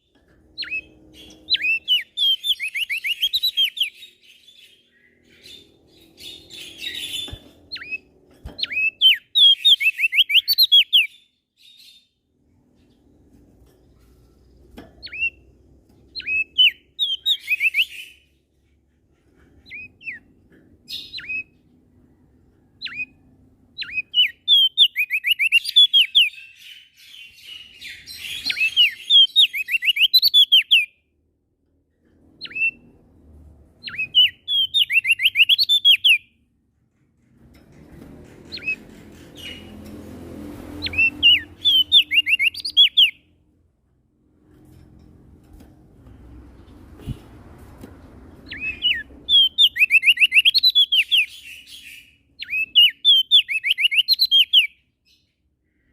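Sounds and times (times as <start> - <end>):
bird singing high sliding notes: 40.6 - 43.2.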